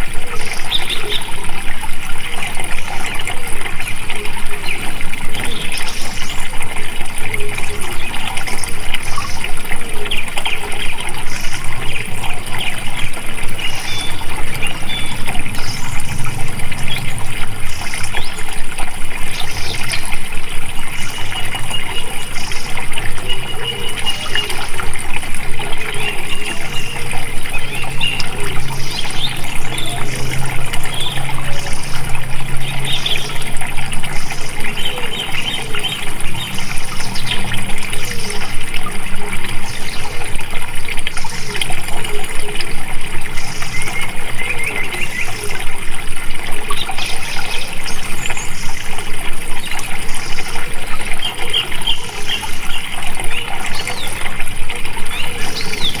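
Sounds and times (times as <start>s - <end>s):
birds chirping: 0.0s - 56.0s
water flowing and splashing: 0.0s - 56.0s
low hum: 14.0s - 20.2s.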